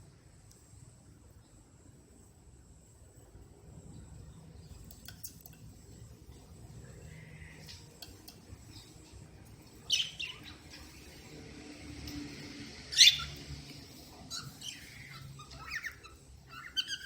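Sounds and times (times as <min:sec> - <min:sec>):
cockatiel calling: 0:12.9 - 0:13.4, 0:14.3 - 0:17.0.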